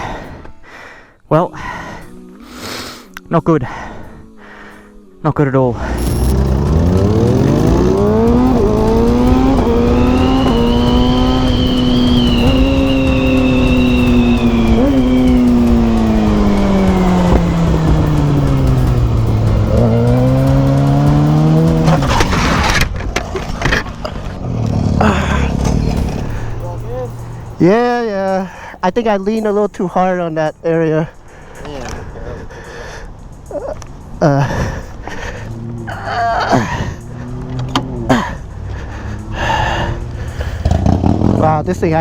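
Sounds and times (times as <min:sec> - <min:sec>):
motorcycle engine revving: 0:05.7 - 0:29.4, 0:33.1 - 0:42.0
engine knocks and noise: 0:05.8 - 0:29.6, 0:31.2 - 0:42.0.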